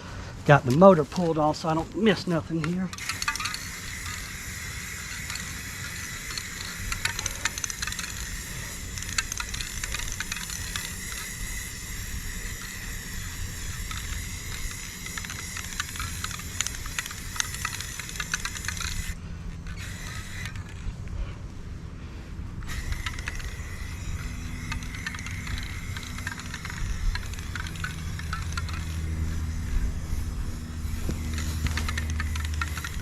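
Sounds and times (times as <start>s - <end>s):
spray paint can hissing: 2.9s - 20.8s, 22.6s - 33.0s.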